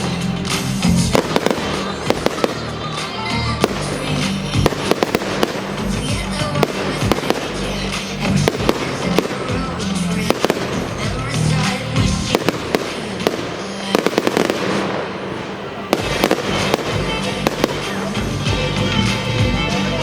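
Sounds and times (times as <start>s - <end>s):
fireworks bangs and crackles: 0.0s - 19.5s
pop music over loudspeakers: 0.0s - 20.0s.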